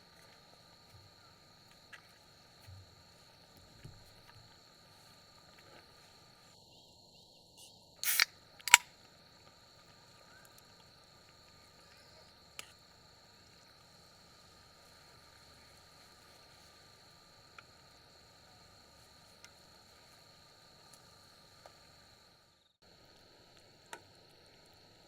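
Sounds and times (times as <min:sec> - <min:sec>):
crickets trilling: 0:00.0 - 0:25.0
sharp clicks: 0:08.0 - 0:08.8.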